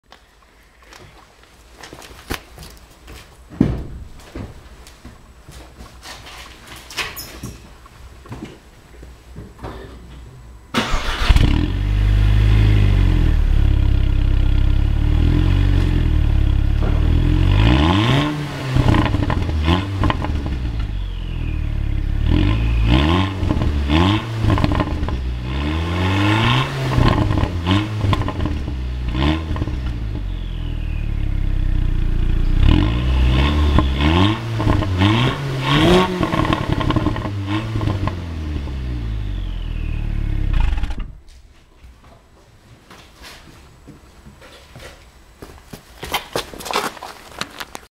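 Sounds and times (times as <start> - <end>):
car engine idling and revving: 11.0 - 41.2.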